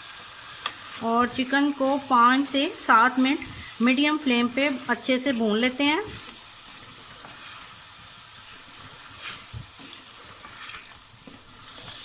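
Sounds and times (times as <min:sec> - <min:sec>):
chicken sizzling in oil: 0:00.0 - 0:12.0
spatula scraping a pot: 0:06.0 - 0:07.8, 0:08.4 - 0:12.0.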